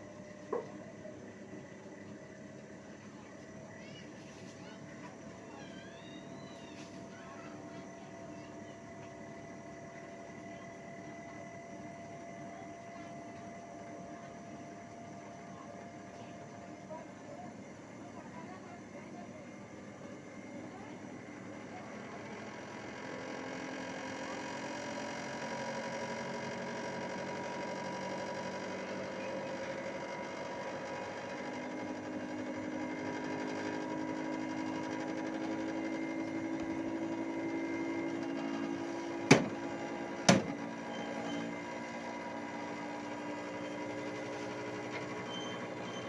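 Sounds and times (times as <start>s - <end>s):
air conditioner unit humming: 0.0s - 46.0s
sharp knocks: 39.3s - 39.6s, 40.3s - 40.6s.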